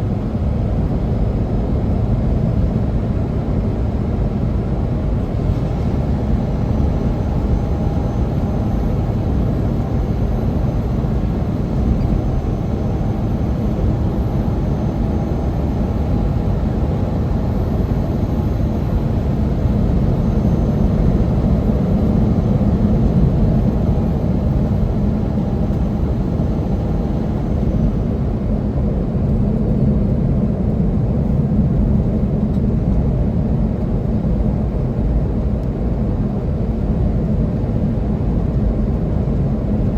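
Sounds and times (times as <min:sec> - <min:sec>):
faint whine: 0:00.0 - 0:29.9
truck engine rumble: 0:04.4 - 0:28.6
road noise: 0:05.0 - 0:21.4.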